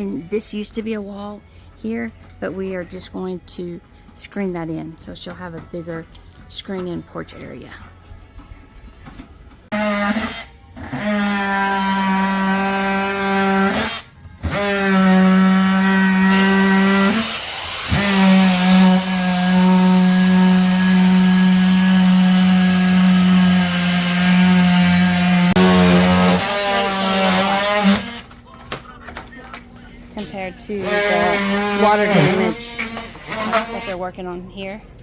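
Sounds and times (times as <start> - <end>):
power tool motor whining: 9.7 - 28.3, 30.8 - 34.0.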